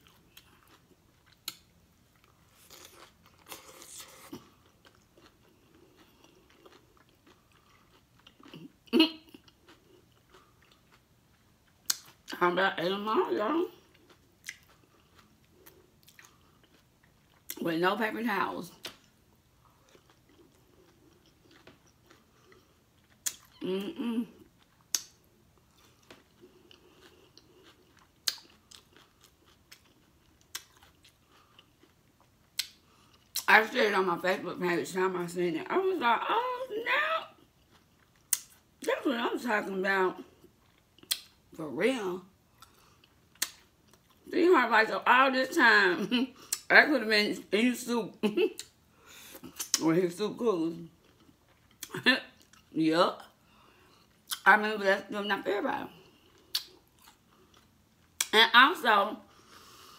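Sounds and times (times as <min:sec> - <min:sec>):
crunching bites of taco: 0:00.0 - 0:12.3, 0:13.8 - 0:17.6, 0:18.8 - 0:23.6, 0:24.4 - 0:33.5, 0:37.5 - 0:38.8, 0:40.4 - 0:41.5, 0:42.5 - 0:44.3, 0:56.3 - 0:58.4
quiet chewing with clicks: 0:00.0 - 0:12.4, 0:13.7 - 0:17.6, 0:18.7 - 0:23.6, 0:24.3 - 0:33.5, 0:37.4 - 0:38.7, 0:40.2 - 0:41.4, 0:42.5 - 0:44.3, 0:50.9 - 0:54.4, 0:56.0 - 0:58.4
wet mouth smacks: 0:24.9 - 0:25.2, 0:41.0 - 0:41.3, 0:43.4 - 0:43.6, 0:56.5 - 0:57.2.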